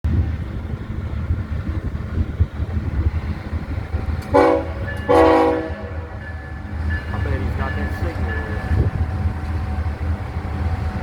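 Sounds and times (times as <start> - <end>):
diesel locomotives rumbling by: 0.0 - 11.0
locomotive air horn blasts: 4.3 - 6.2.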